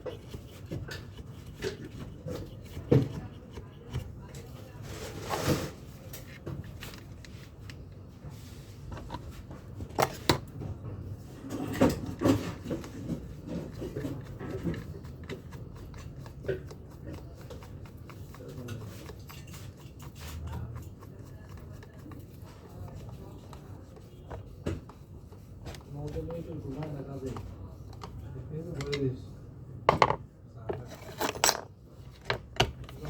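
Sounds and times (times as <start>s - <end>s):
tool parts clicking and knocking: 9.9s - 10.6s, 29.9s - 33.0s.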